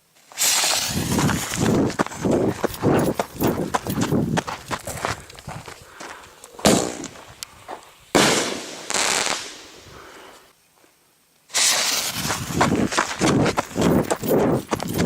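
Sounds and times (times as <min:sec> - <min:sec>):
fireworks crackling: 0:00.2 - 0:05.1, 0:06.6 - 0:10.4, 0:11.5 - 0:15.0
fireworks bangs: 0:00.4 - 0:02.2, 0:06.6 - 0:07.4, 0:08.1 - 0:10.0, 0:11.5 - 0:13.8.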